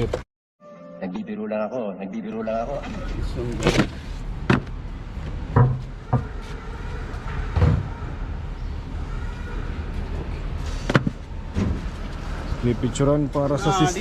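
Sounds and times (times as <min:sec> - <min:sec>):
sudden knocks and clunks: 0:03.6 - 0:06.4.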